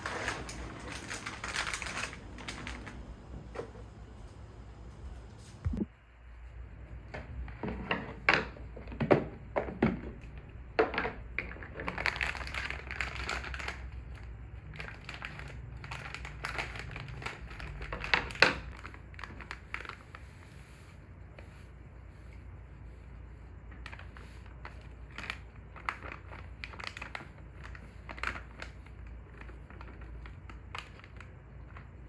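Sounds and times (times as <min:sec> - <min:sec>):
crinkling rustle: 0:00.0 - 0:03.3, 0:11.6 - 0:32.0.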